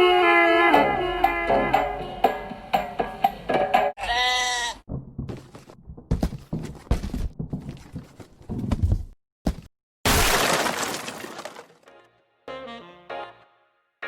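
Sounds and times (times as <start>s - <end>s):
animal bleat: 4.0s - 4.8s
knocks and rustling: 4.9s - 9.7s.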